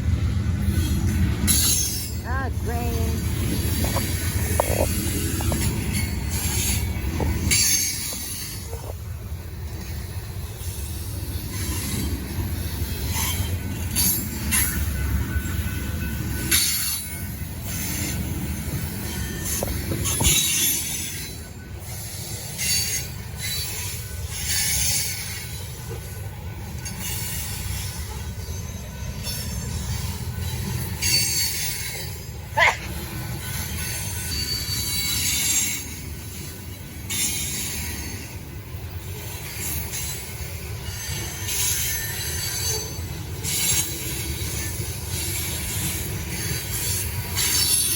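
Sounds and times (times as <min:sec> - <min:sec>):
freight train rumbling: 0:00.0 - 0:47.9
wheel squeals: 0:33.4 - 0:36.0.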